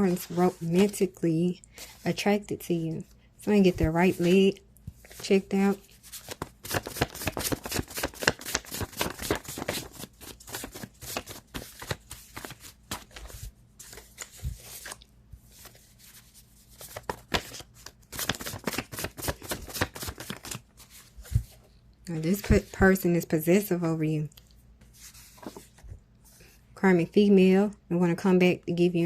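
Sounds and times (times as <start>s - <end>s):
cards being shuffled: 5.9s - 21.6s.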